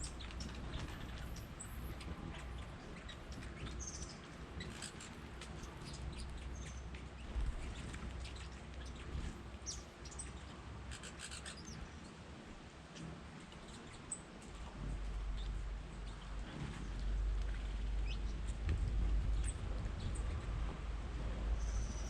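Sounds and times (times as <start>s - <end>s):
faint low rumble: 0.0s - 22.0s
songbirds chirping: 0.0s - 22.0s
thin whistled bird calls: 21.6s - 22.0s.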